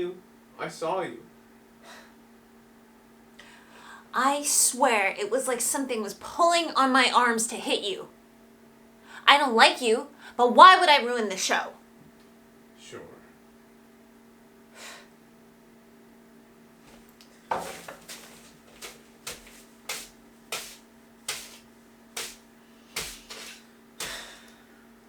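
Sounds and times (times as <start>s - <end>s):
low electrical hum: 0.0s - 25.0s
sharp taps: 17.5s - 21.6s, 22.2s - 22.4s, 23.0s - 24.4s.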